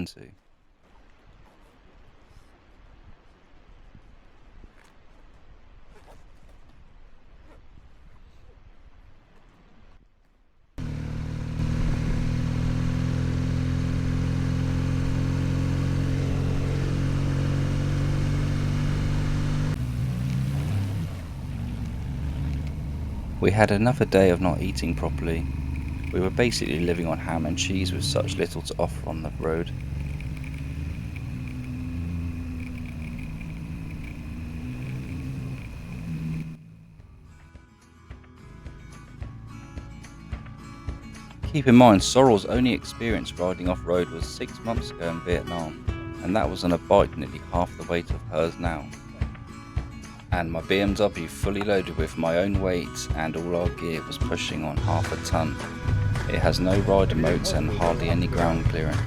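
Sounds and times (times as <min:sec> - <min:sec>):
motorcycle engine running: 0:10.8 - 0:37.4, 0:54.8 - 0:59.0.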